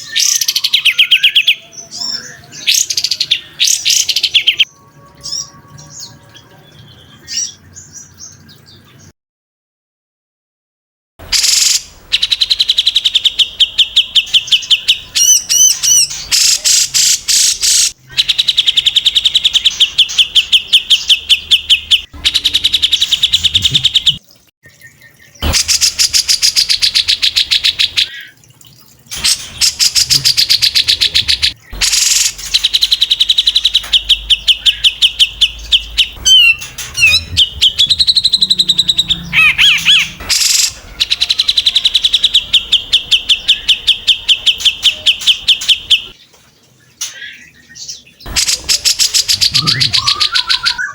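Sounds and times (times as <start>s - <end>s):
songbird singing fast trills: 29.2s - 46.1s, 48.2s - 50.9s.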